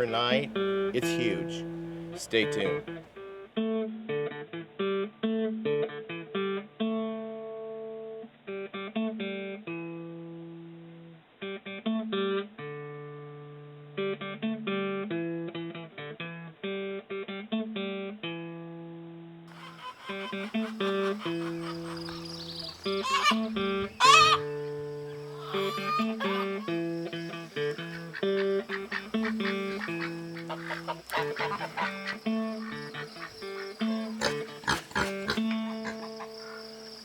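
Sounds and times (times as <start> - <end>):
acoustic guitar plucked and strummed: 0.0 - 10.8.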